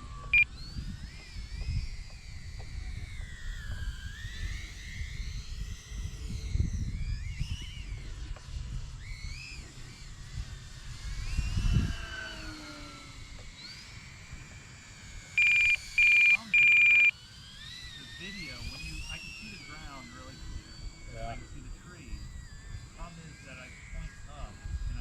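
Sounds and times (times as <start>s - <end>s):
wind buffeting microphone: 0.0s - 15.2s, 18.0s - 25.0s
model aircraft motor whine: 0.0s - 25.0s.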